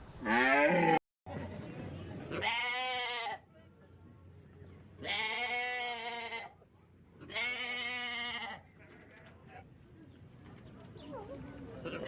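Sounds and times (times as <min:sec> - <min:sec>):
sheep or goat bleating: 0:00.2 - 0:01.0.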